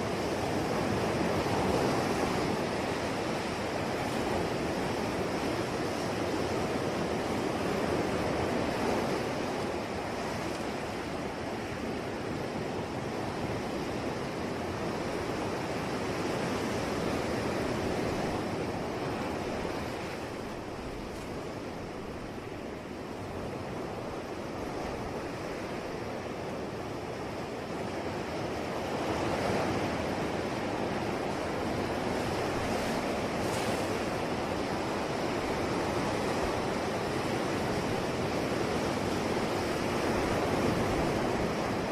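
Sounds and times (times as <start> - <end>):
ocean waves breaking on shore: 0.0 - 41.9.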